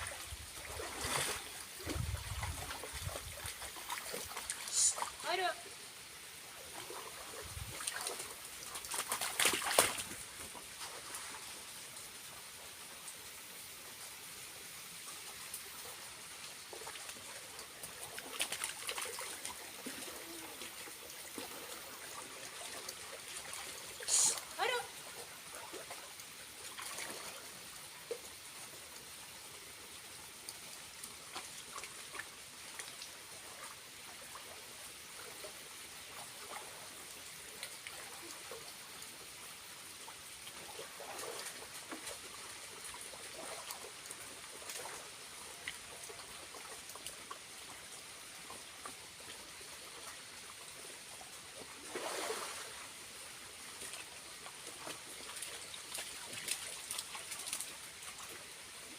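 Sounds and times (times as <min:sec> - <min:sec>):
small waterfall trickling: 0:00.0 - 0:58.9.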